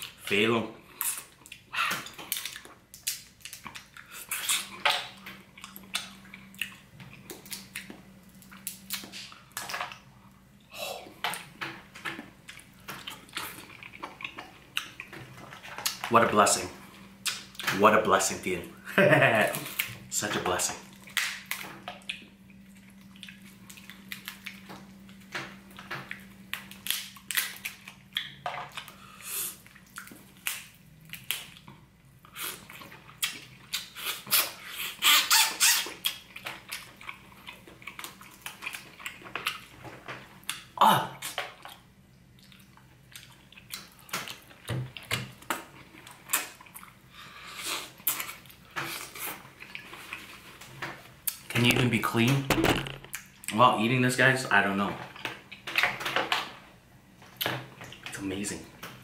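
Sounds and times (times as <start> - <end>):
wet chewing and lip-smacking: 0.9 - 10.1, 12.2 - 16.0, 20.8 - 35.0, 35.6 - 50.6.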